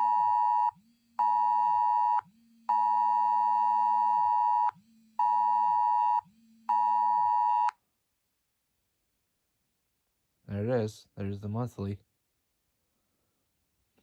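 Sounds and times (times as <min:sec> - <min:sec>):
electronic alarm beeping: 0:00.0 - 0:07.7.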